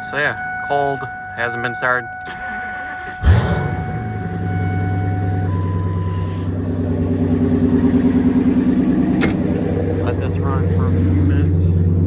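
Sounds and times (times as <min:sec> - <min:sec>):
truck engine starting and idling: 0:02.1 - 0:12.0
electronic chime tone: 0:03.6 - 0:08.1.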